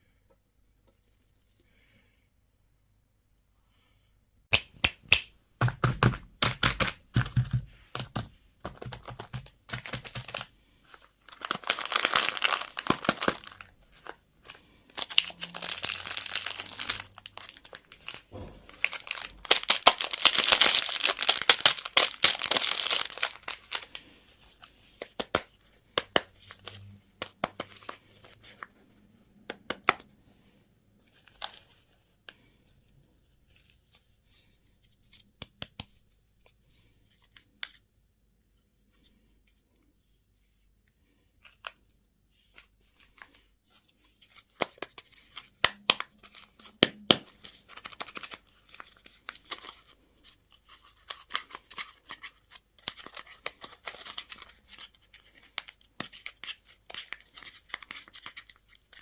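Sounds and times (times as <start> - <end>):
plastic wrappers tearing and crinkling: 8.8 - 24.0, 44.3 - 50.0, 50.6 - 59.0.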